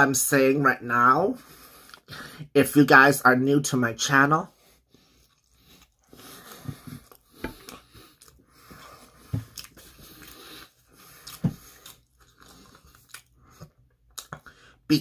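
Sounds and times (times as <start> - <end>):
wet chewing sounds: 4.7 - 14.8.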